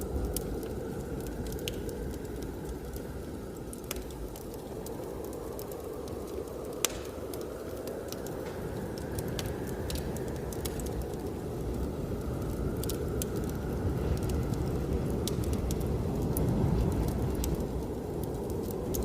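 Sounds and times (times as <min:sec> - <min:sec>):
wood fire crackling: 0:00.0 - 0:19.0
blizzard wind rushing: 0:04.3 - 0:19.0.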